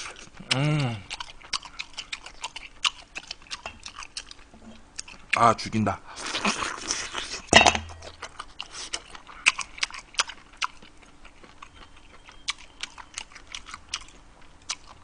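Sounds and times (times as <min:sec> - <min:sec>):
close chewing with mouth clicks: 0:00.0 - 0:05.4, 0:06.2 - 0:15.0.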